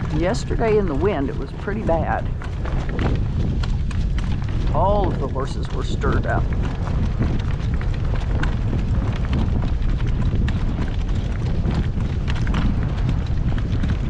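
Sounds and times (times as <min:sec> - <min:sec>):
horse trotting in harness: 0:00.0 - 0:14.0
wind buffeting microphone: 0:00.0 - 0:14.0.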